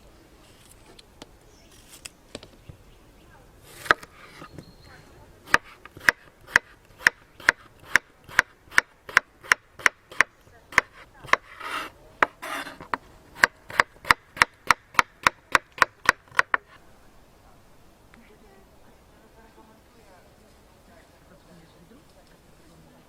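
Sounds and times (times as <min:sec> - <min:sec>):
short rubbing scrape: 0:03.6 - 0:04.5, 0:10.9 - 0:13.0.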